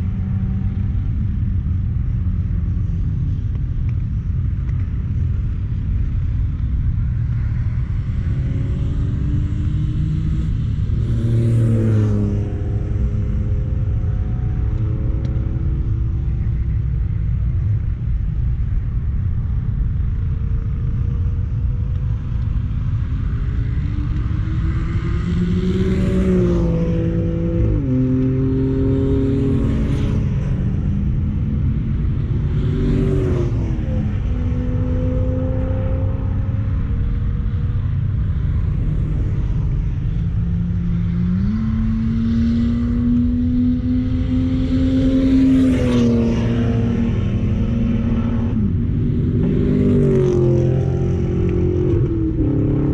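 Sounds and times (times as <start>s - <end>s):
wind and road noise: 0.0s - 52.9s
car engine revving: 23.7s - 52.9s.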